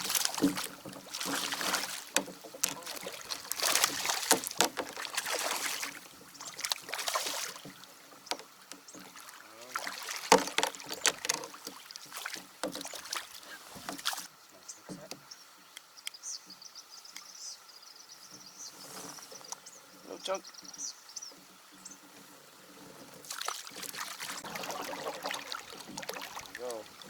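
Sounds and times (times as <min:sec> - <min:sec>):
knocks on plastic hull: 0:00.0 - 0:05.9, 0:09.8 - 0:13.2
water splashing against kayak: 0:00.0 - 0:15.2, 0:18.8 - 0:27.0.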